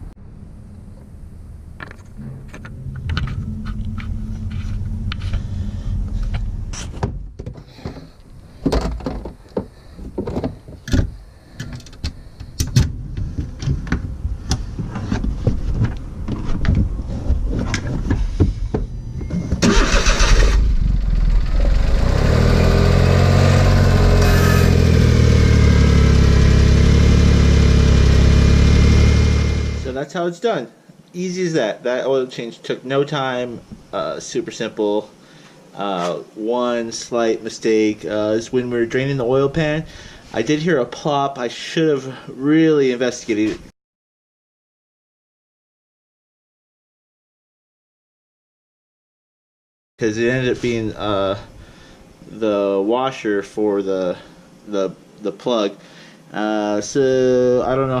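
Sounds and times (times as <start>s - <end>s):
car engine starting and idling: 0.2s - 7.4s, 19.5s - 30.0s
knocks and clatter: 1.8s - 5.4s, 6.1s - 11.9s.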